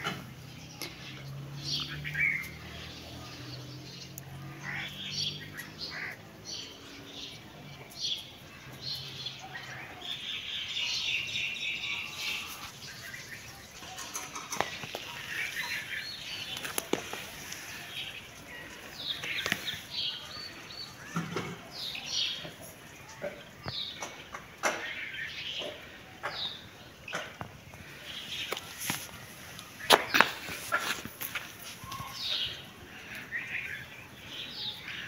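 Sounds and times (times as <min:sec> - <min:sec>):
small birds chirping: 0:00.0 - 0:35.0
rustling: 0:27.8 - 0:33.1.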